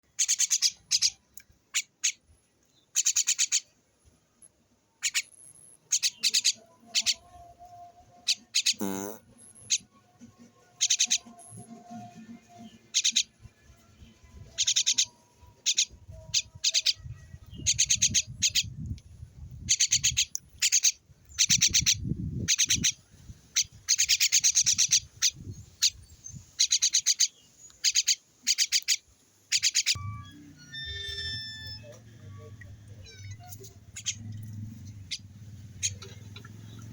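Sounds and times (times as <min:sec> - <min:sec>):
small bird chirping: 0:00.0 - 0:09.9, 0:10.7 - 0:36.9
low rumbling noise: 0:30.0 - 0:36.9.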